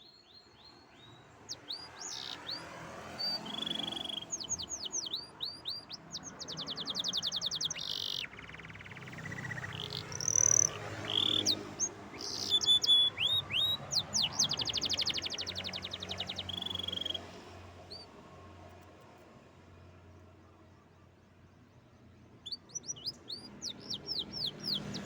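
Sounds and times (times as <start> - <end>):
canary singing: 1.0 - 18.1, 22.3 - 25.0.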